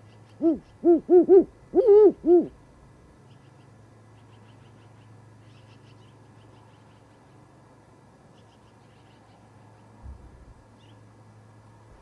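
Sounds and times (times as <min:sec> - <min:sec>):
steady low hum: 0:00.0 - 0:12.0
bird chirping: 0:03.2 - 0:07.4, 0:08.3 - 0:09.9, 0:10.8 - 0:11.1.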